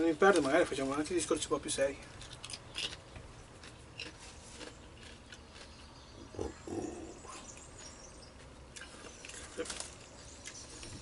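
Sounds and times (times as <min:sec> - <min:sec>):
man chewing: 0:02.1 - 0:11.0.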